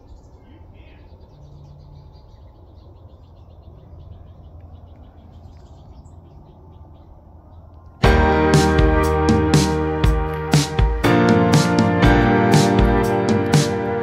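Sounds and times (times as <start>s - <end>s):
loud music: 8.0s - 14.0s.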